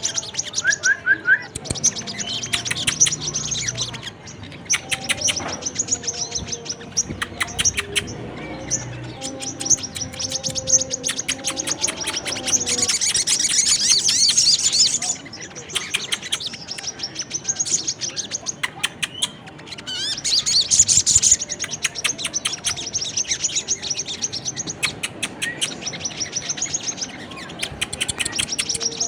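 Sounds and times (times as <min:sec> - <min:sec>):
small songbirds chirping and trilling: 0:00.0 - 0:29.0.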